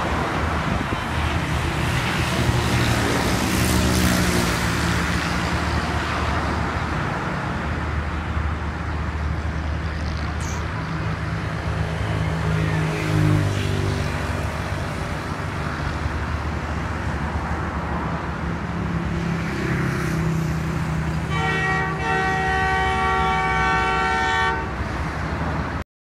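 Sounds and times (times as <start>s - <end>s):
diesel locomotive rumbling: 0.0s - 19.2s, 20.5s - 25.8s
locomotive horn blast: 21.2s - 24.9s.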